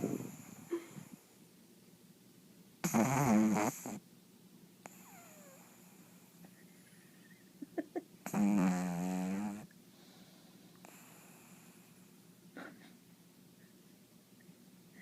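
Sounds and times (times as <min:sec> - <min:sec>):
dog snoring: 0:00.0 - 0:01.2, 0:02.8 - 0:04.0, 0:04.8 - 0:06.4, 0:08.2 - 0:09.7, 0:10.8 - 0:12.1
short snorts: 0:02.8 - 0:04.0, 0:08.3 - 0:09.6.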